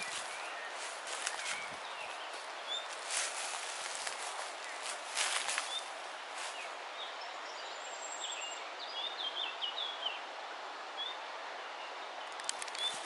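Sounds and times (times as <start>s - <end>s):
background hiss: 0.0s - 13.0s
sharp clicks: 12.4s - 13.0s.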